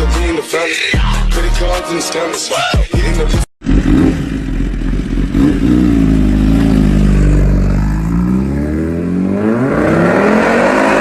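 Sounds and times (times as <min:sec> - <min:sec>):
motorcycle engine accelerating: 0:03.6 - 0:11.0.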